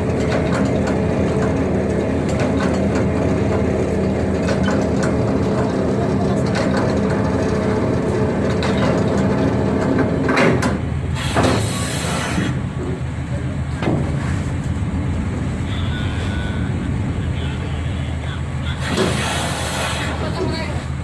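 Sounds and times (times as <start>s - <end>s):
ship diesel engines droning: 0.0s - 21.0s
rushing hiss: 11.2s - 12.5s, 18.8s - 20.2s.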